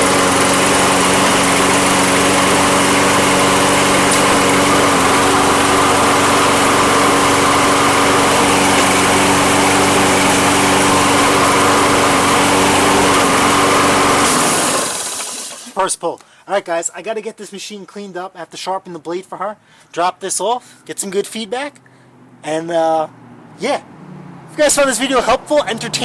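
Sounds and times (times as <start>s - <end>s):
lawn mower engine running: 0.0s - 15.8s.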